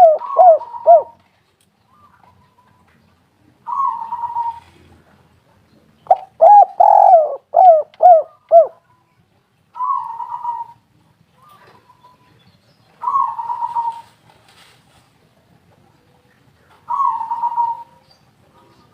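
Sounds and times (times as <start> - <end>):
dove cooing: 0.0 - 1.2, 3.6 - 4.9, 6.1 - 8.8, 9.8 - 10.8, 13.0 - 14.2, 16.8 - 18.9.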